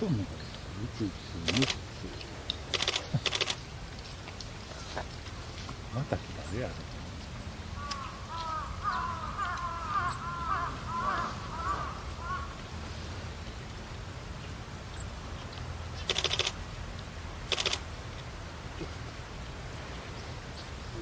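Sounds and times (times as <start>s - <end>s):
birds chirping: 0.0s - 3.6s, 7.8s - 12.5s
crow cawing: 7.8s - 12.6s.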